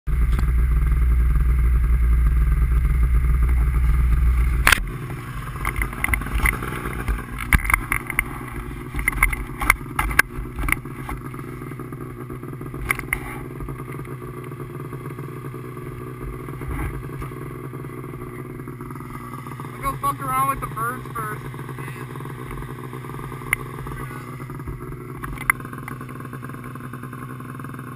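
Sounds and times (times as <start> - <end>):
vehicle engine humming: 0.1 - 27.9
scattered clicks and knocks: 5.6 - 11.2, 24.6 - 26.2.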